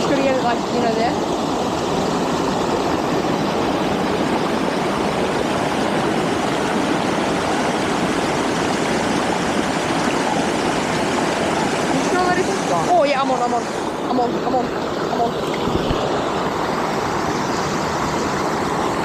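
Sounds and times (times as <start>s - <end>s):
water rushing over weir: 0.0s - 19.0s.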